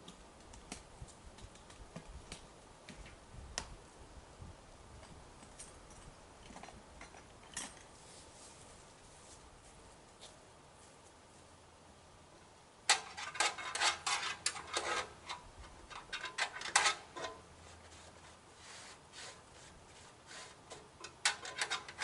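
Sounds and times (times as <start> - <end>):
scraping and rubbing: 12.9 - 22.0.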